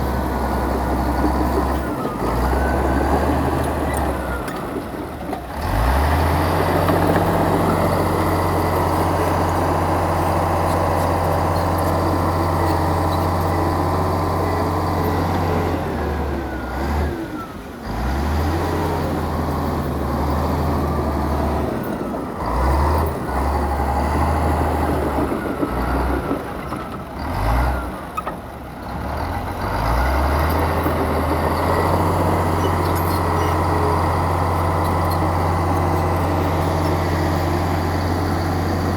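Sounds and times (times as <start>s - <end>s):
heavy diesel engine under load: 0.0s - 38.9s.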